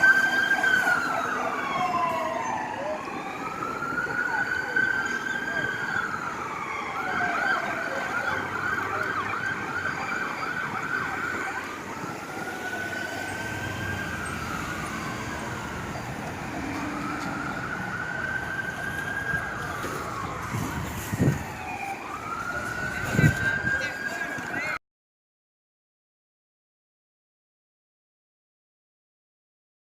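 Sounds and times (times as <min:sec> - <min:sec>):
emergency siren yelp and wail: 0:00.0 - 0:24.8.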